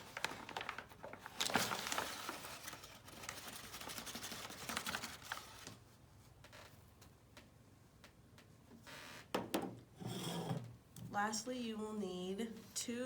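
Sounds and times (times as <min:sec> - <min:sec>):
rustling: 0:00.0 - 0:05.8
scraping in a bowl: 0:10.0 - 0:10.7.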